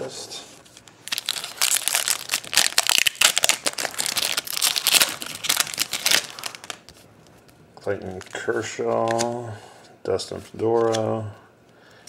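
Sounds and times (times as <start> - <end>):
foil wrapper crinkling and tearing: 0.7 - 7.0.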